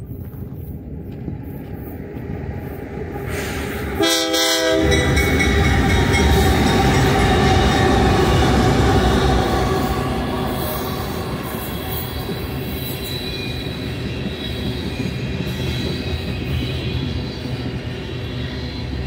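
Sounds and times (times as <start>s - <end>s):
diesel train rumble: 0.0s - 19.0s
train horn blast: 4.0s - 12.4s.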